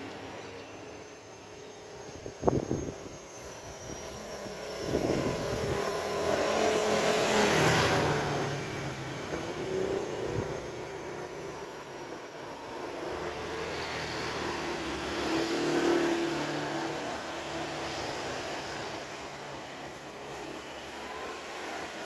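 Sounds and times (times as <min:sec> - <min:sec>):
vehicle passing by: 0:13.0 - 0:22.0.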